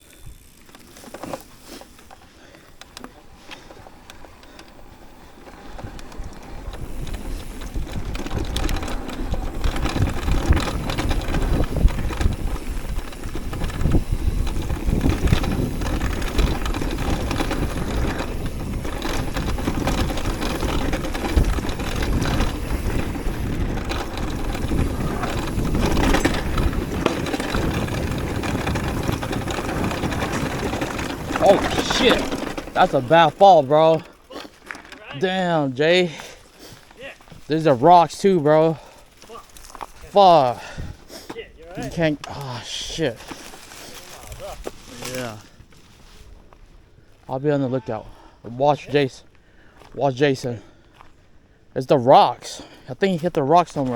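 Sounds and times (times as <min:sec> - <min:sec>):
bike tyre noise on rough ground: 0:00.0 - 0:53.9
chain and frame rattling: 0:02.8 - 0:36.3
wind buffeting microphone: 0:03.3 - 0:34.3, 0:39.6 - 0:42.3.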